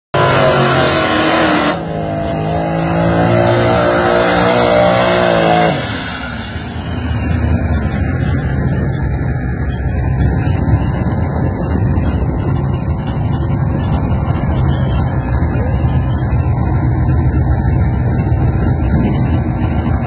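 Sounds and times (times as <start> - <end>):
rough engine during burnout: 0.1 - 20.0
race car engines at high revs: 0.2 - 20.0.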